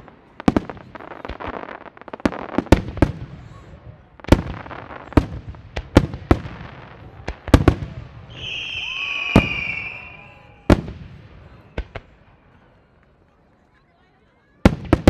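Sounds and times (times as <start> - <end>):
fireworks booming: 0.0 - 12.2, 14.7 - 15.0
high whistle: 8.3 - 10.8.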